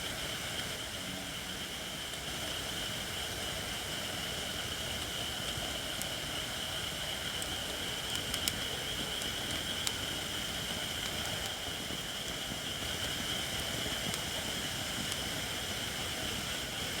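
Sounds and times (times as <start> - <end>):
wood fire crackling and popping: 7.2 - 11.9.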